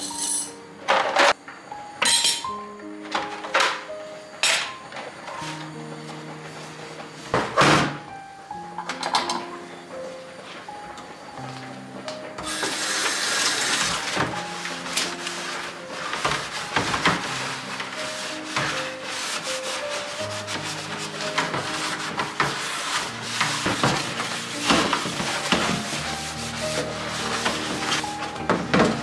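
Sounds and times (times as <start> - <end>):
soft background music: 0.0 - 29.0
scrubbing strokes on a surface: 12.8 - 28.2.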